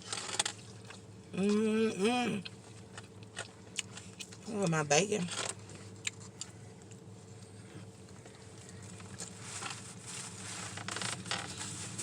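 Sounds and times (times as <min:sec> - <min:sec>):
steady low hum: 0:00.0 - 0:12.0
person eating softly: 0:05.7 - 0:10.4.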